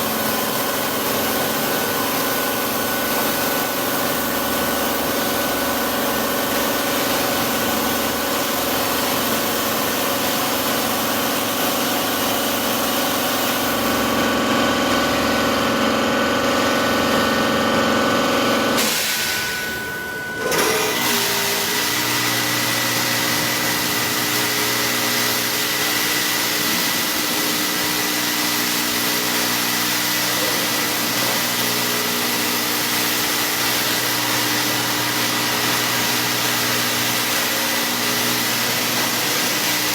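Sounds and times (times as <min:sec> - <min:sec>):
steady machine hum with tones: 0:00.0 - 0:39.9
different machine hum: 0:01.6 - 0:28.6.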